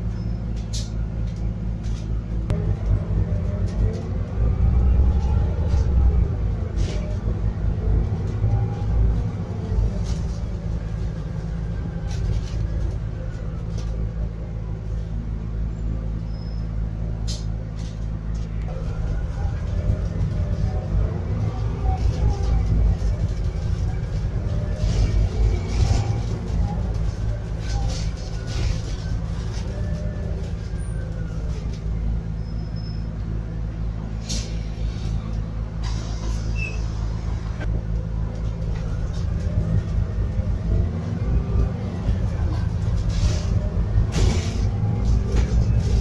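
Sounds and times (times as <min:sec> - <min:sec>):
bus engine humming: 0:00.0 - 0:46.0.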